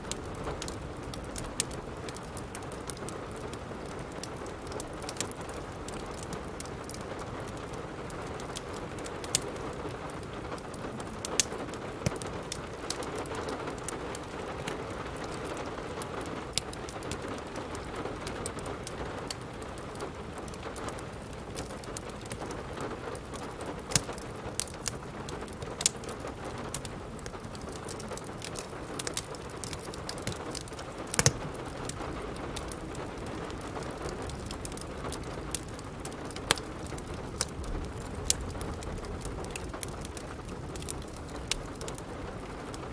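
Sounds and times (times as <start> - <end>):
steady rain: 0.0 - 42.9
wood fire crackling and popping: 0.0 - 42.9.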